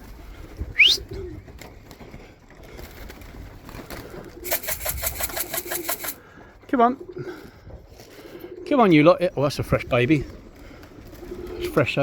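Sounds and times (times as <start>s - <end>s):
pigeons cooing: 0.0s - 6.4s, 7.0s - 12.0s
fast even rattle: 4.4s - 6.2s.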